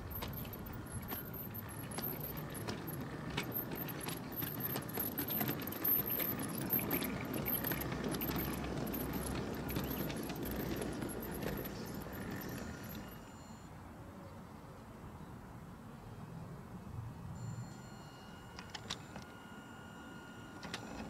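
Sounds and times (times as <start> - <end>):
metallic clanks and clicks: 0.0 - 13.2
train rolling along track: 0.0 - 13.5, 17.7 - 21.0.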